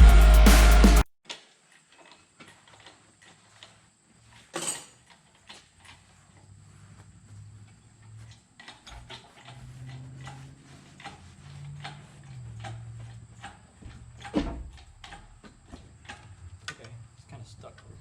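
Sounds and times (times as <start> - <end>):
tools and metal parts clicking: 4.4 - 5.6.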